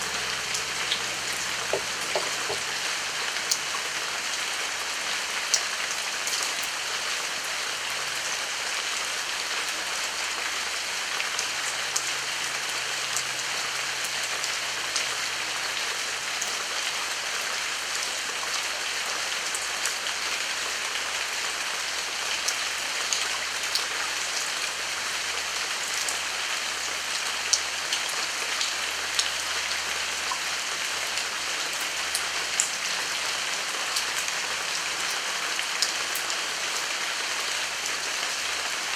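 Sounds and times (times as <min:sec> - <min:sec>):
raindrops ticking: 0:00.0 - 0:04.0
heavy rain: 0:00.0 - 0:38.9.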